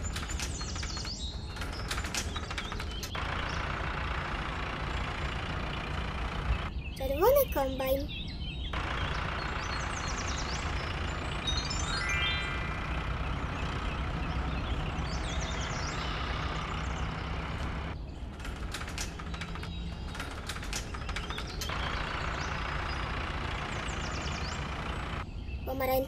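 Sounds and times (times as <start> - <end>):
roller garage door rattling: 0.0 - 6.8, 12.7 - 25.3
engine low rumble: 0.0 - 26.0.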